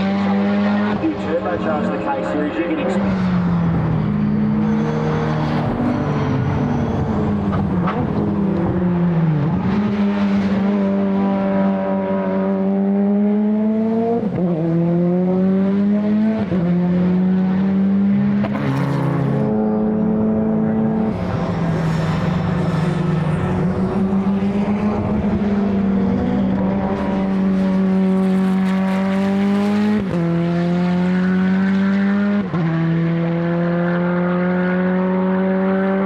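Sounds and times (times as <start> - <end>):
race car engine accelerating: 0.0 - 36.0.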